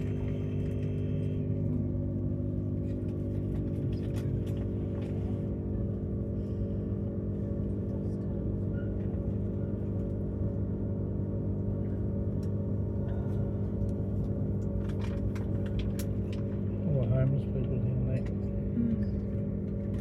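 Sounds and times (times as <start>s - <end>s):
train carriage hum and drone: 0.0s - 20.0s.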